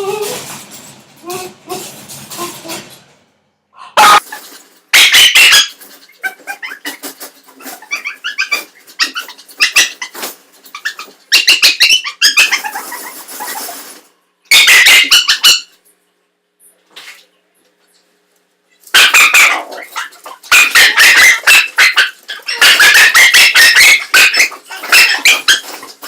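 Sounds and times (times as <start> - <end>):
small dog yipping and barking: 5.0 - 7.0, 7.6 - 13.5, 14.5 - 15.7, 19.0 - 25.9.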